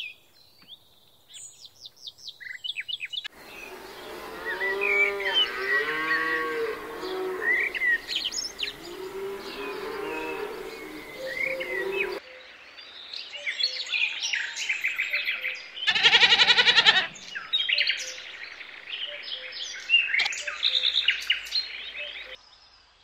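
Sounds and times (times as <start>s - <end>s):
songbirds chirping and singing: 0.0s - 22.6s
rapid pulsed bird call: 3.4s - 12.2s.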